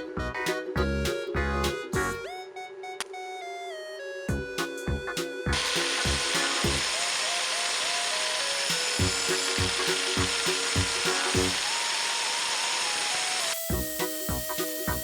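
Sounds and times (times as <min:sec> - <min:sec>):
music with a regular beat: 0:00.0 - 0:02.3, 0:04.3 - 0:06.9, 0:09.0 - 0:11.6, 0:13.7 - 0:15.0
power tool hissing: 0:05.6 - 0:15.0.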